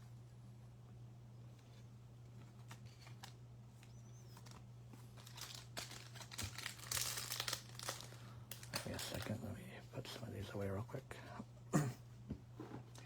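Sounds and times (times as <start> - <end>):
steady low hum: 0.0 - 13.0
plastic crinkling and rustling: 2.4 - 9.5.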